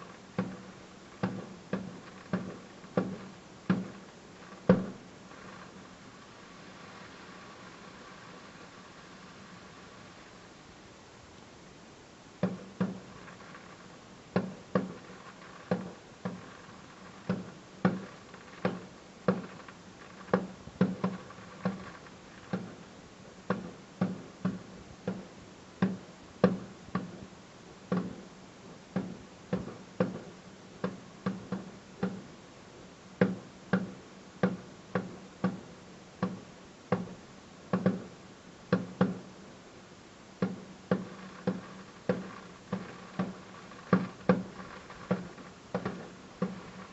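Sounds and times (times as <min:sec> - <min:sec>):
firework shells bursting: 0:00.0 - 0:10.6, 0:12.4 - 0:27.2, 0:40.4 - 0:46.9.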